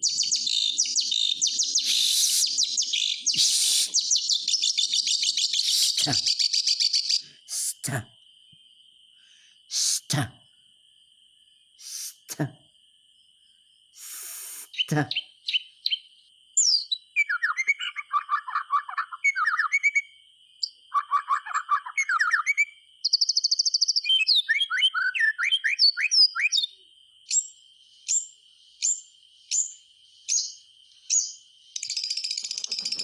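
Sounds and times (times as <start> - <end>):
bird singing trills and whistles: 0.0 - 7.2, 14.0 - 33.0
sharp falling bird notes: 1.7 - 4.2.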